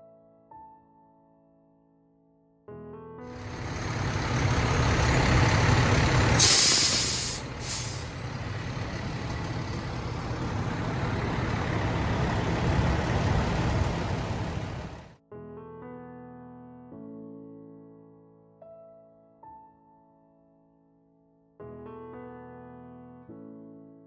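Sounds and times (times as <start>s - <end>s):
heavy vehicle engine running: 3.3s - 15.1s
loud air hiss: 3.4s - 8.5s.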